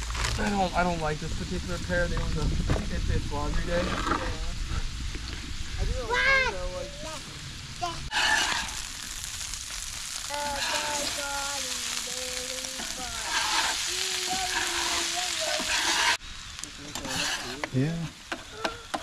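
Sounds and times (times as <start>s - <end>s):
food sizzling on griddle: 0.0s - 19.0s
metal spatula scraping griddle: 8.1s - 9.0s, 12.6s - 16.2s, 16.9s - 17.9s.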